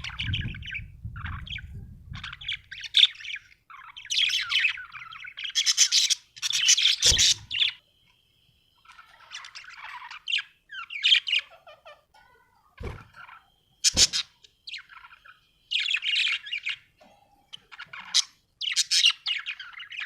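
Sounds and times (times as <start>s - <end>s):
budgerigar chirping: 0.0s - 7.8s, 12.8s - 16.9s, 17.6s - 20.0s.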